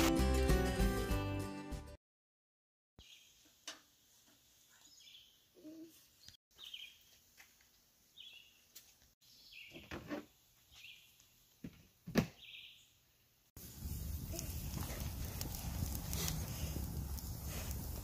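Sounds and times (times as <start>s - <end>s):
birds chirping: 8.2s - 9.9s.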